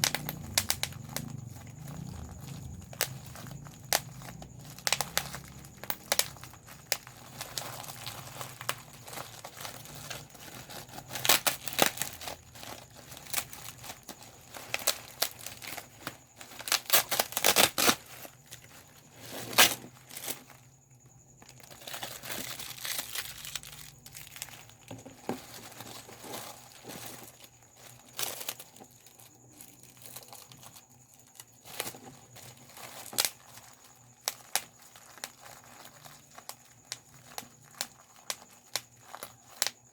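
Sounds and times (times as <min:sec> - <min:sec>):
bubble wrap popping: 0:00.0 - 0:20.4
plastic sheet crinkling: 0:00.0 - 0:20.6, 0:21.4 - 0:39.9.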